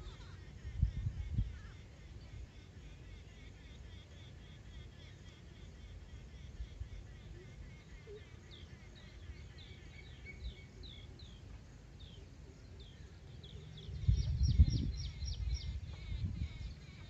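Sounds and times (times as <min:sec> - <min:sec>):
bird chirping: 0:05.2 - 0:17.0.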